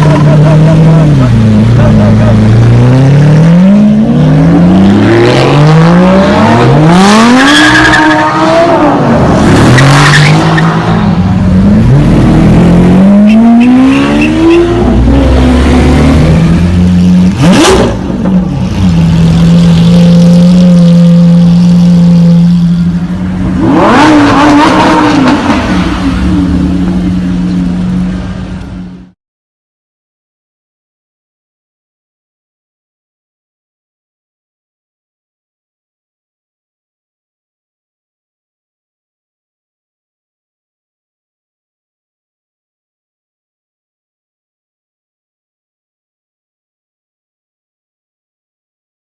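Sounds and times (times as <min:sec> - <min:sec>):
car engines accelerating: 0:00.0 - 0:28.9.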